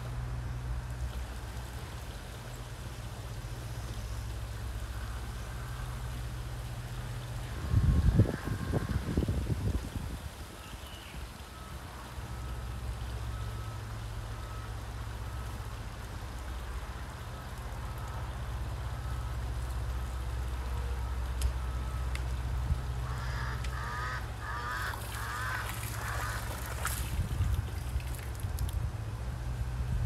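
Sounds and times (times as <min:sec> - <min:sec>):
low outdoor rumble: 0:00.0 - 0:30.0
water running from garden hose: 0:24.4 - 0:28.9.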